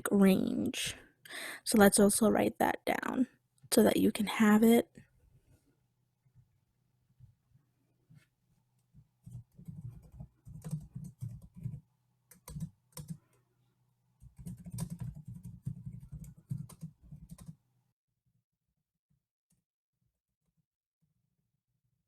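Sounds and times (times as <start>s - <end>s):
keyboard typing clicks: 9.3s - 13.2s, 14.2s - 17.6s.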